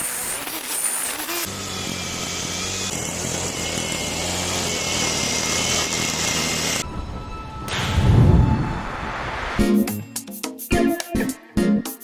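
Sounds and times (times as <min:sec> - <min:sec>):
angle grinder motor whining: 0:00.0 - 0:09.6.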